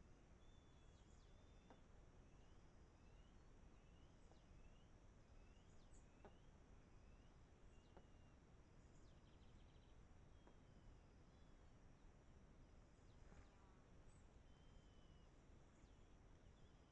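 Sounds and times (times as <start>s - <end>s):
faint bird calls: 13.0s - 16.9s.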